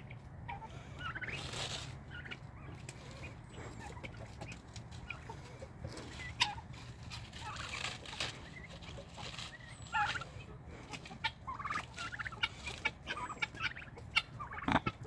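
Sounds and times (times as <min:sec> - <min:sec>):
fowl giving harsh calls: 0:07.4 - 0:15.0.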